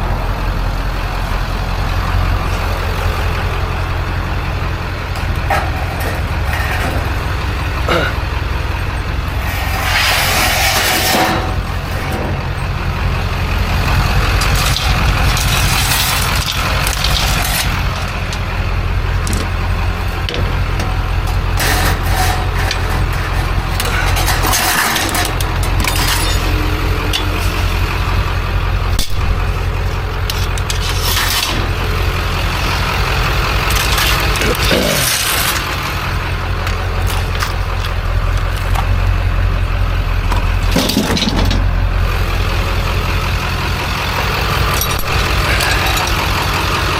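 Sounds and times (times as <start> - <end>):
low engine rumble: 0.0 - 46.9
metal parts clicking and clanking: 5.1 - 8.3, 8.9 - 12.6, 14.2 - 28.2, 28.9 - 39.2, 40.3 - 41.8, 44.1 - 46.9.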